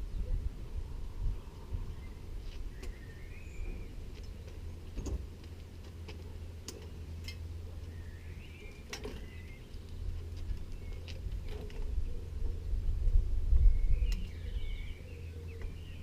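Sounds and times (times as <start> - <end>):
low rumble: 0.0 - 16.0
bird chirping: 1.9 - 4.6, 7.8 - 12.3, 13.6 - 16.0.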